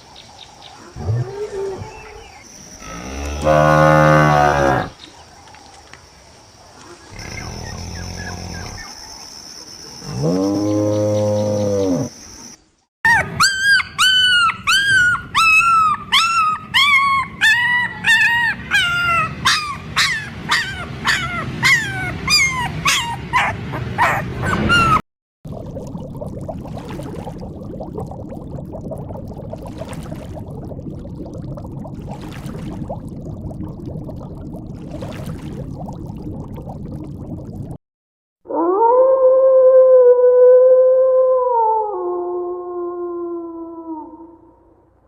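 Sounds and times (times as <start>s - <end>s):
low moo-like animal call: 2.8s - 4.9s, 10.1s - 12.1s
high whining animal calls: 13.1s - 25.0s.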